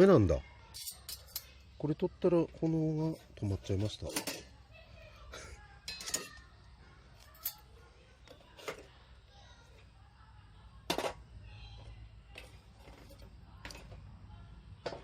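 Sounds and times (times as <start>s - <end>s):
light metallic clinks: 0.7s - 1.6s, 7.2s - 7.8s.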